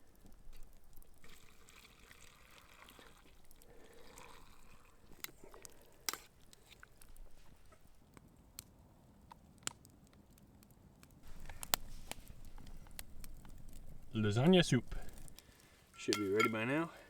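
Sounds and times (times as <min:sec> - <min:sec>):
water trickling: 0:00.0 - 0:08.0, 0:11.2 - 0:16.8.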